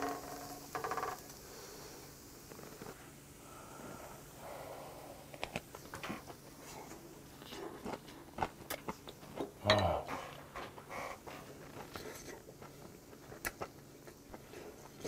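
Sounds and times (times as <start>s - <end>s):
chewing food: 7.3s - 9.5s
person humming mm: 9.6s - 10.2s.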